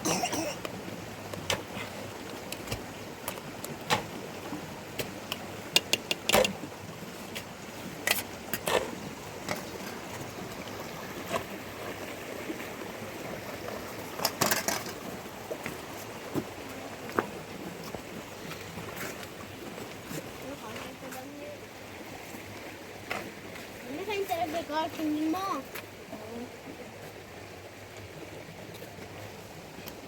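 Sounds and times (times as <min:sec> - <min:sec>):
sharp knocks and clicks: 0:05.3 - 0:06.6.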